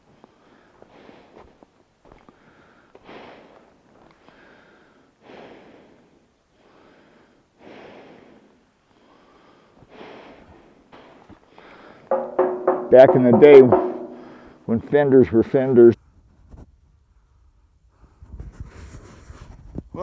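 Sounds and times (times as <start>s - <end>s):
person breathing heavily: 2.4s - 12.1s.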